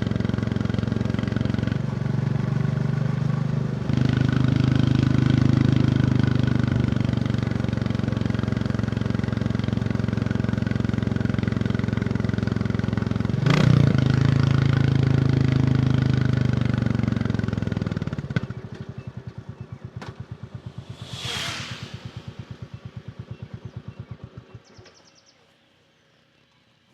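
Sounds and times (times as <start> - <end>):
motorcycle engine running: 0.0 - 24.8
whoosh: 20.2 - 23.6.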